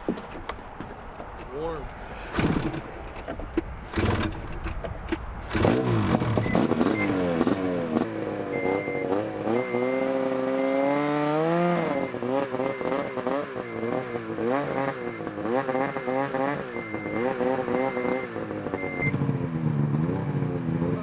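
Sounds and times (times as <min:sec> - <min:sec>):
vehicle engine revving: 0:00.0 - 0:21.0
high beeps: 0:06.4 - 0:07.3, 0:08.5 - 0:10.2, 0:16.7 - 0:19.2.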